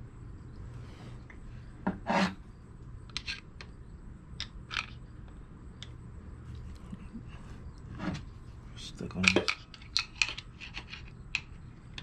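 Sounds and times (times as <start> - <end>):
metal parts scraping: 9.2 - 11.2.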